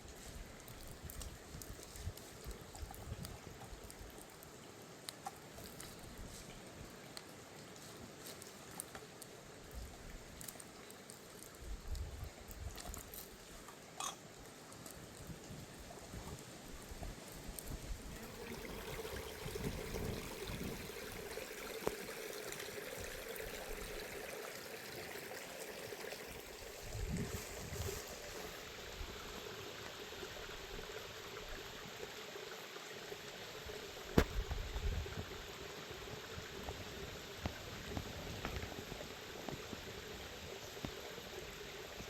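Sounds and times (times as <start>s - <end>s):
water trickling: 17.4s - 39.0s.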